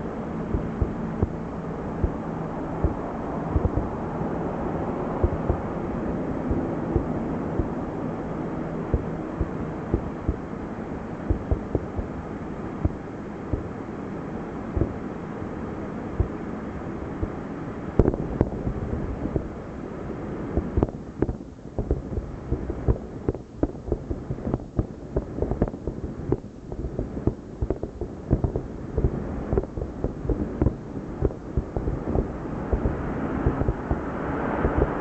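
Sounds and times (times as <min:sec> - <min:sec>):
distant fireworks bursting: 0:00.0 - 0:01.4, 0:02.0 - 0:04.0, 0:05.2 - 0:05.7, 0:11.3 - 0:12.2, 0:18.0 - 0:19.6, 0:20.5 - 0:35.0
low rumble: 0:00.0 - 0:13.8, 0:17.1 - 0:35.0.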